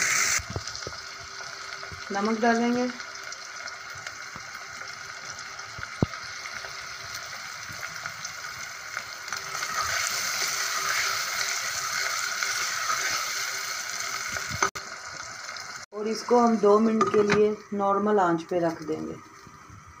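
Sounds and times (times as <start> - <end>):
food sizzling in a pot: 0.0 - 20.0
spatula stirring: 9.4 - 13.3.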